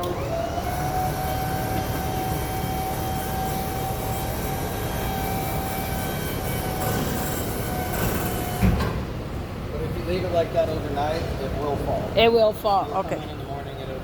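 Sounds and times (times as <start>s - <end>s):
hydraulic pump motor whining: 0.0s - 9.0s.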